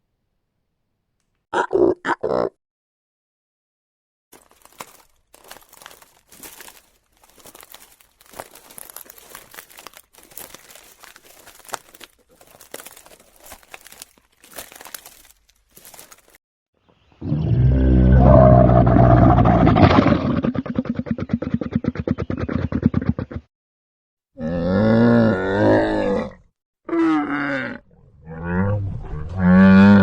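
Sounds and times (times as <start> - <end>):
crinkling and rustling: 4.3 - 16.4
sharp crackles: 4.4 - 16.4.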